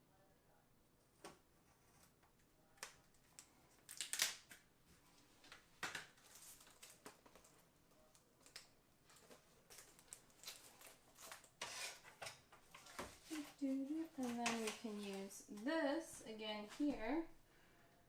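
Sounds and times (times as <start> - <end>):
tile sheets rustling and scraping: 9.0 - 17.3.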